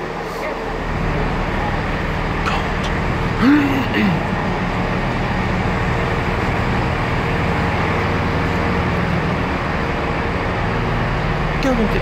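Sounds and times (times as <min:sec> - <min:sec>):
train idling drone: 0:00.0 - 0:12.0.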